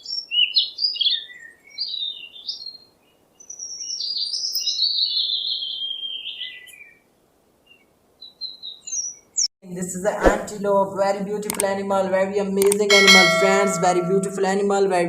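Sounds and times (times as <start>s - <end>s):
small songbird chirping and warbling: 0.0s - 6.9s.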